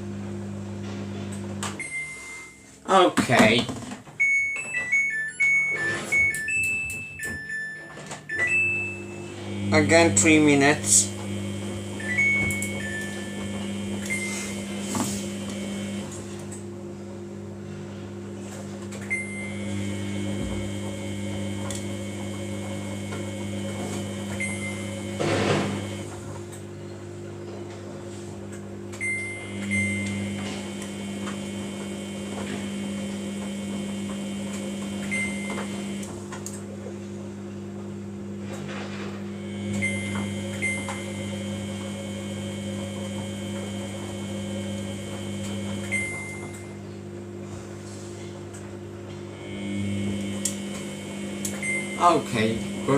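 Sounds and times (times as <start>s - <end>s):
washing machine drum whining: 0.0s - 16.7s, 18.4s - 27.2s, 28.6s - 36.5s, 38.4s - 47.4s, 48.2s - 52.9s
steady hum: 8.8s - 27.0s, 38.7s - 52.9s.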